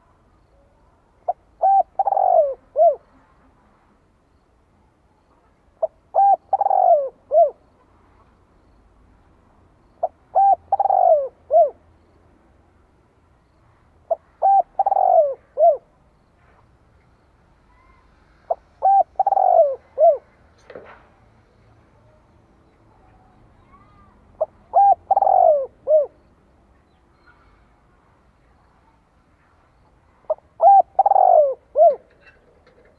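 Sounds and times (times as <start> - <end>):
dove cooing: 1.3 - 3.2, 5.8 - 7.6, 10.0 - 11.8, 14.1 - 15.9, 18.5 - 20.3, 23.7 - 26.3, 30.3 - 32.4.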